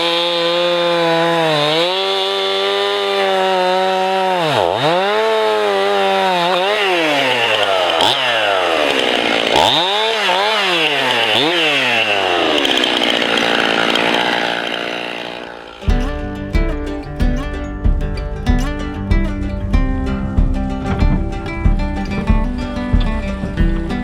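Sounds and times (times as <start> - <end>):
noisy rasp: 0.0 - 16.1
chainsaw engine at high revs: 0.0 - 16.4.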